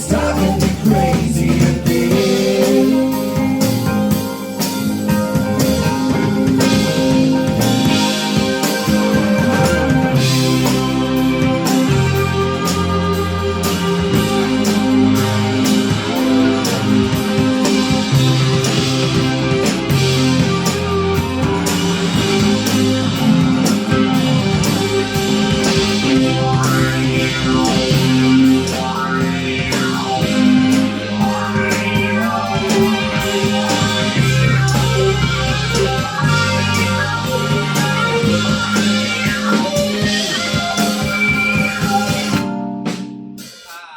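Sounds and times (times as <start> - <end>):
electric guitar: 0.0 - 43.4
sustained bass notes: 0.0 - 43.4
drums and cymbals: 0.0 - 43.9
live rock band playing: 0.0 - 43.9.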